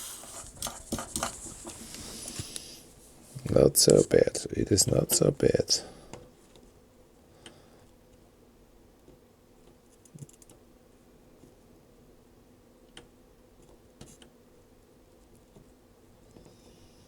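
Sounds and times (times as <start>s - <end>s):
low steady hum: 0.0s - 7.8s.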